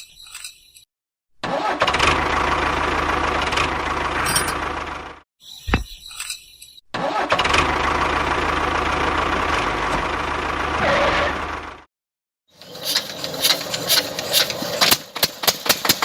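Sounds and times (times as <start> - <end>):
thump: 5.7 - 5.9
small engine running: 12.6 - 16.0.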